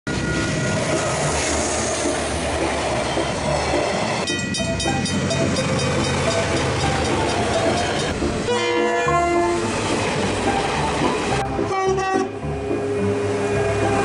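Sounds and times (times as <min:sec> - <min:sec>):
freight train passing: 0:00.1 - 0:14.0
crossing bells ringing: 0:03.1 - 0:12.1.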